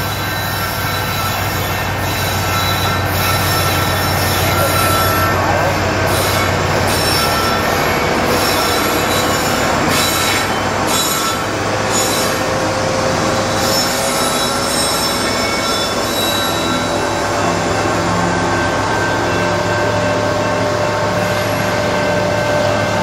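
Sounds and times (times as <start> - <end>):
diesel locomotive engine: 0.0 - 23.0
steel wheels squealing on rails: 0.0 - 23.0
train rumble: 0.0 - 23.0.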